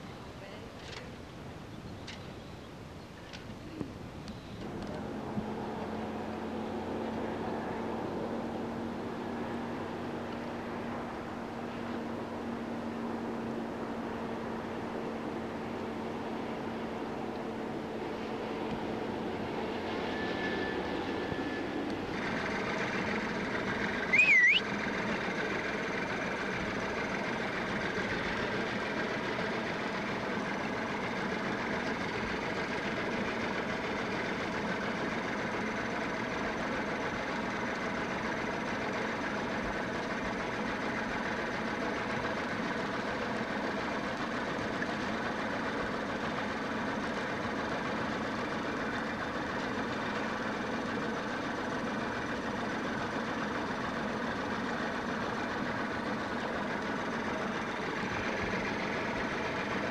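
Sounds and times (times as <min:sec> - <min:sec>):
boat engine droning: 0:03.8 - 0:59.9.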